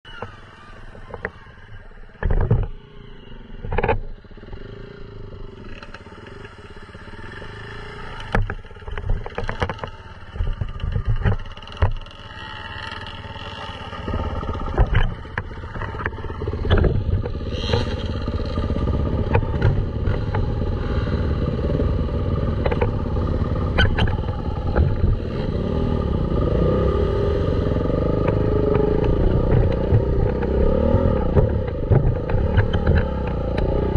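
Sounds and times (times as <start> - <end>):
dirt bike engine running: 2.2 - 33.9
sharp knocks and clatter: 8.2 - 20.7, 22.5 - 25.5, 28.2 - 33.9.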